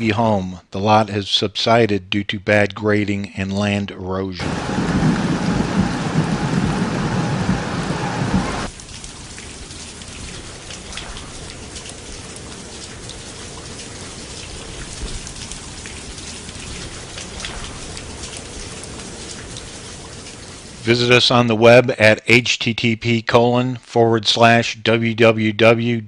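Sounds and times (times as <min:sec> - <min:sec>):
raindrop ticks: 0:04.4 - 0:21.0
heavy rain falling: 0:04.4 - 0:21.3.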